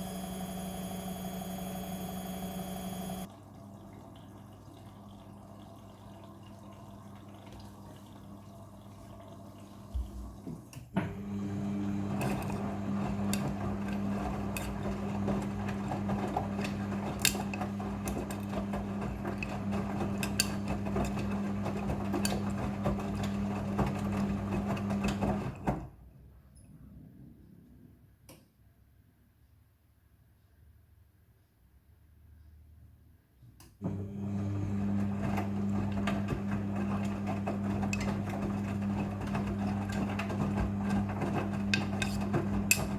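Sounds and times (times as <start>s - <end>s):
washing machine humming: 0.0s - 26.0s, 33.8s - 42.9s
water sloshing in washing machine: 0.4s - 26.0s, 33.8s - 42.9s.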